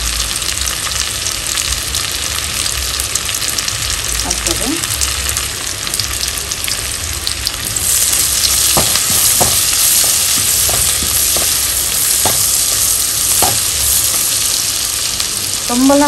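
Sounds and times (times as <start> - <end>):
vegetables sizzling in butter: 0.0 - 16.0
spatula tapping and scraping pan: 8.5 - 14.2.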